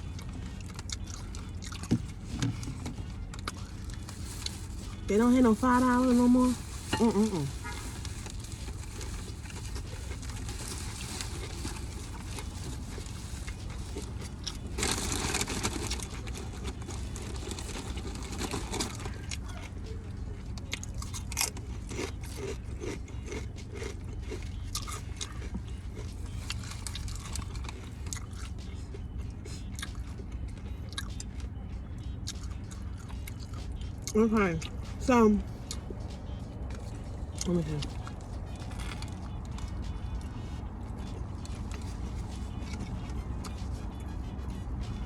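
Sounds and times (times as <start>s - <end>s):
person chewing and biting: 0.0s - 5.1s, 6.6s - 19.8s, 20.5s - 34.8s, 35.5s - 45.0s.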